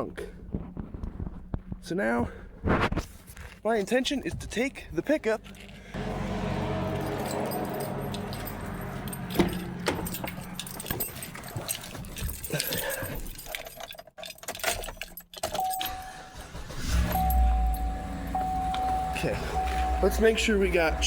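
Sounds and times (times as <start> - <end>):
loud low rumble: 6.0 - 10.9
keys jangling: 6.9 - 16.2.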